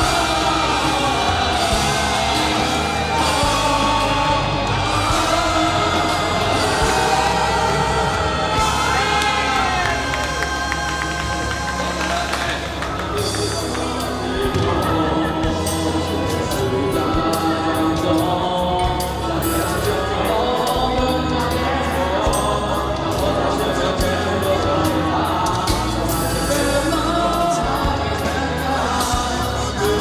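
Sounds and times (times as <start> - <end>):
bass and drum beat: 0.0 - 30.0
pop-rock ballad singing: 0.0 - 30.0.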